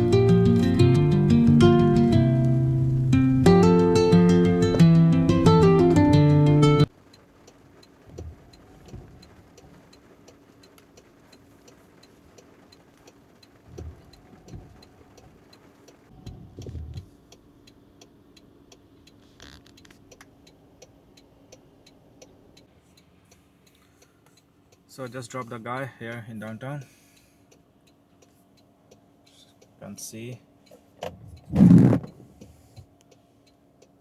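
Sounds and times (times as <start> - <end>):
guitar music: 0.0 - 6.9
turn signal ticking: 0.0 - 26.2, 26.8 - 34.0
faint steady hum: 0.0 - 34.0
low dull thuds: 8.0 - 9.9, 13.6 - 14.9, 31.0 - 32.6.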